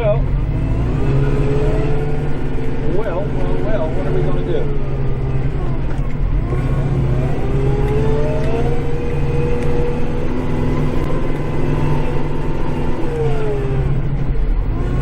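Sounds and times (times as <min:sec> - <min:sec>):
diesel tractor engine under load: 0:00.0 - 0:15.0
tractor drive whine: 0:00.0 - 0:15.0.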